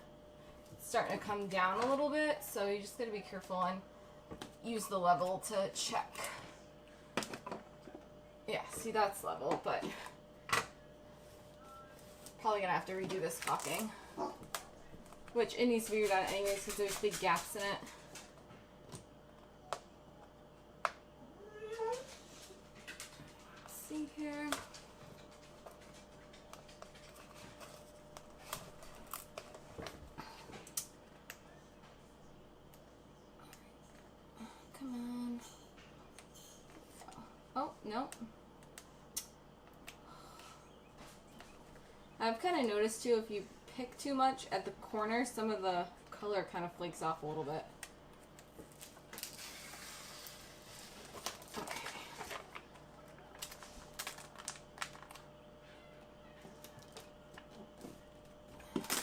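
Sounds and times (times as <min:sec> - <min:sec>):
faint steady hum: 0:00.0 - 0:59.0
vinyl sheet crinkling: 0:47.8 - 0:55.4.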